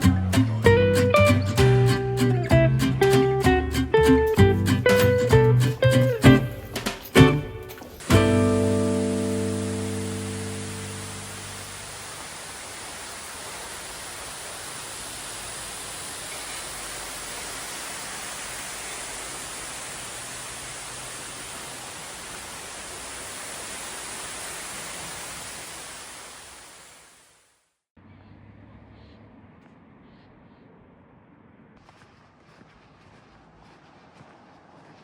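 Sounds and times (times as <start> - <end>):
steady rushing noise: 8.0 - 27.1.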